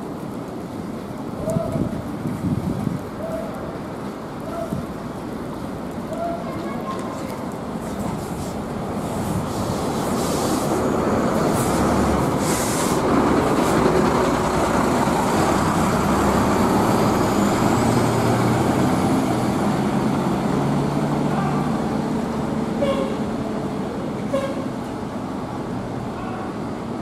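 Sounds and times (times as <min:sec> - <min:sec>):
heavy rain pouring: 0:00.0 - 0:27.0
bus diesel engine droning: 0:08.4 - 0:27.0
air hissing: 0:09.4 - 0:13.8.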